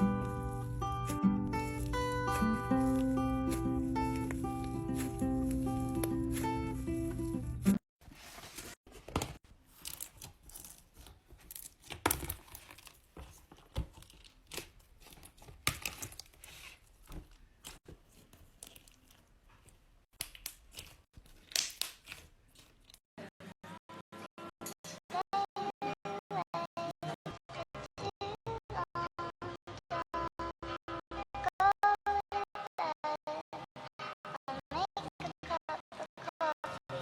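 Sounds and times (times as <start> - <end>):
slime crackling and popping: 20.2 - 22.9.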